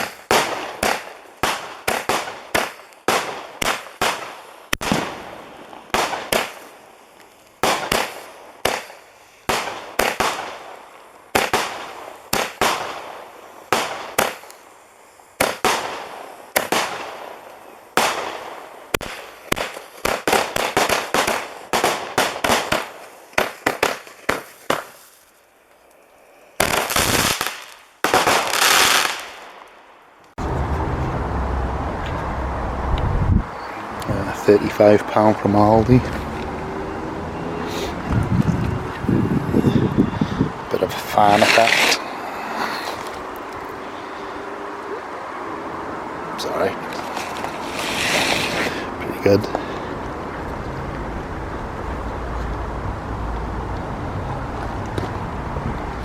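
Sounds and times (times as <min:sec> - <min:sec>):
firework bangs with crackling: 0:00.0 - 0:14.6, 0:15.4 - 0:25.3, 0:26.6 - 0:29.6, 0:40.8 - 0:42.0
firework crackling and hissing: 0:00.0 - 0:29.7, 0:37.7 - 0:44.4, 0:46.4 - 0:50.2.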